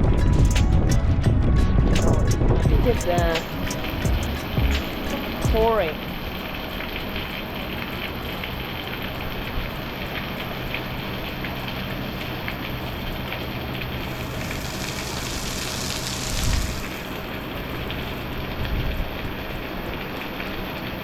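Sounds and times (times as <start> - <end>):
raindrops tapping: 0.2 - 18.0
heavy rain hissing: 2.7 - 19.5.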